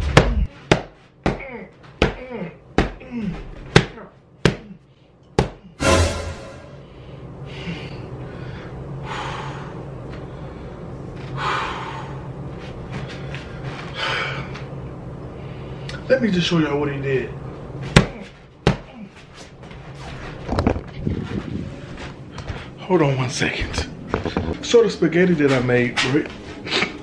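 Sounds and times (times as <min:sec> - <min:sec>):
fist smacking punching pad: 0:00.0 - 0:02.2, 0:03.7 - 0:04.7, 0:17.9 - 0:18.9
steady low hum: 0:00.0 - 0:27.0
person grunting: 0:01.3 - 0:04.8.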